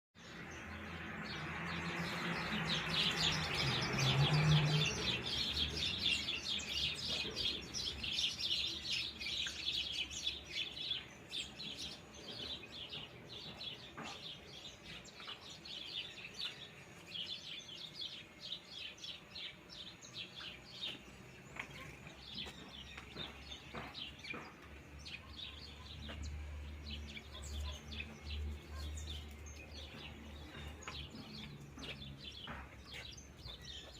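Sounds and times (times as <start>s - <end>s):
birds chirping: 0.2s - 33.9s.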